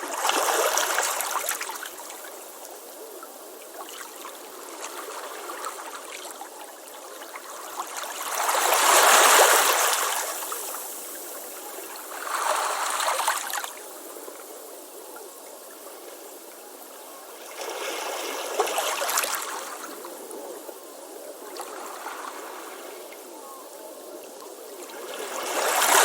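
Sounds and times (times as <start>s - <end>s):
hiss of receding water: 0.0s - 26.0s.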